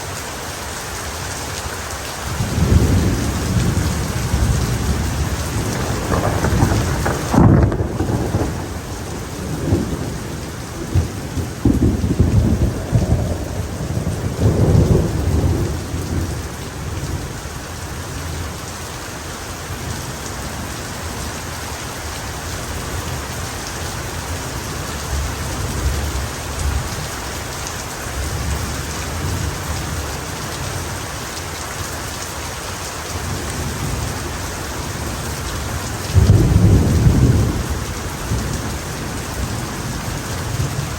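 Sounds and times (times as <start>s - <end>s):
heavy rain: 0.0s - 40.9s
thunder rumbling: 2.3s - 18.5s, 33.2s - 40.9s.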